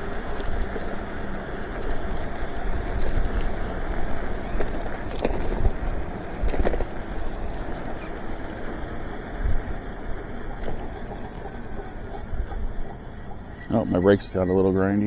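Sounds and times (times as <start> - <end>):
bike tyres rolling on wet pavement: 0.0 - 15.0
brakes grinding: 0.0 - 15.0
high-pitched brake squeal: 8.7 - 15.0.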